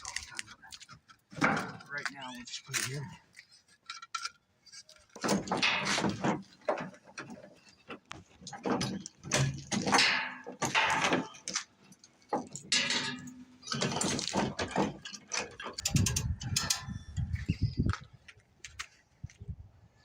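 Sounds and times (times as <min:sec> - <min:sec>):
boards scraping and sliding: 0:00.0 - 0:15.9.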